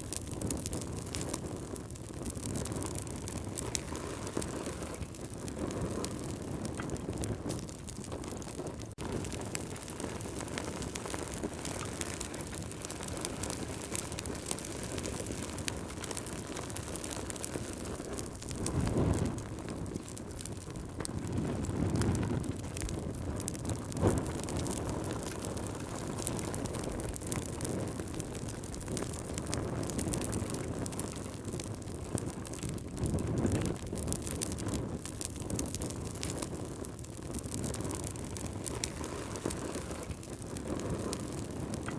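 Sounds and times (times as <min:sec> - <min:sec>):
campfire crackling and hissing: 0:00.0 - 0:41.9.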